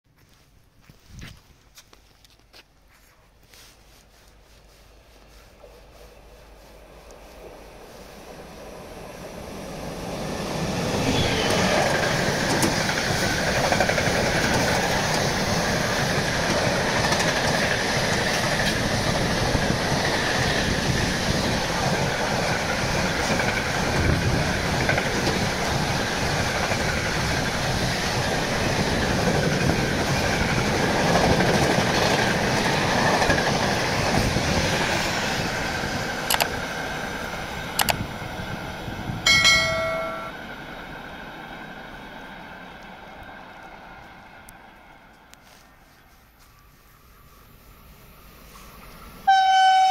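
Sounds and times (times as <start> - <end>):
freight train passing: 3.6 - 49.9
wheels clickety-clack on rail: 8.6 - 45.4.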